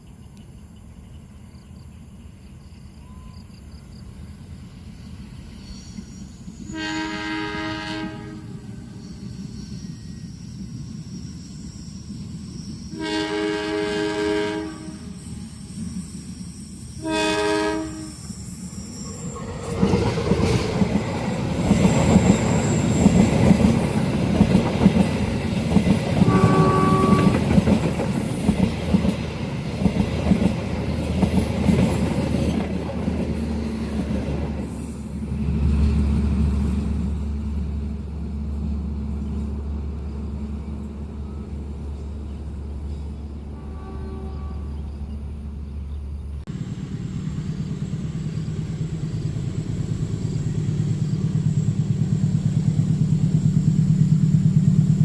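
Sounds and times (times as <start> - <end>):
train passing with rumbling: 0.0 - 55.0
locomotive horn blasts: 6.6 - 8.6, 12.9 - 15.2, 17.0 - 18.3, 26.2 - 27.6, 43.5 - 44.9.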